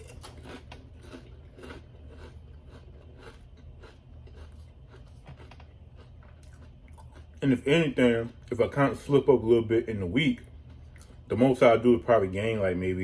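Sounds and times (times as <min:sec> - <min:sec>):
person chewing crunchy food: 0:00.0 - 0:08.6, 0:10.4 - 0:11.3.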